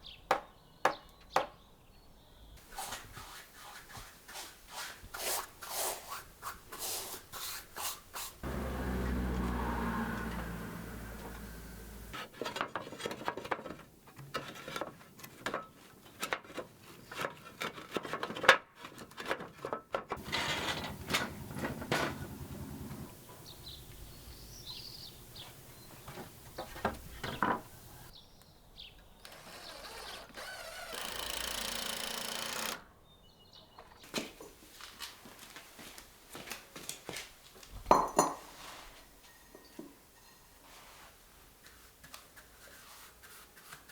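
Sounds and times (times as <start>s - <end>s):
knocks and taps of wood and tools: 0.3s - 1.6s.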